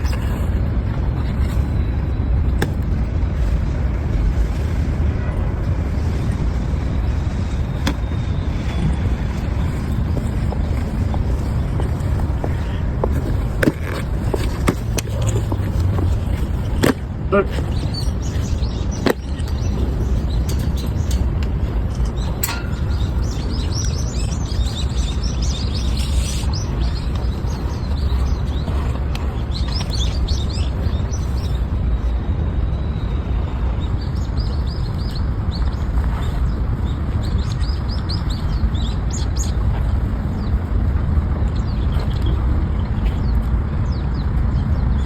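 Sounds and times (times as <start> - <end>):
steady low rumble: 0.0 - 45.0
small birds chirping: 7.0 - 40.7.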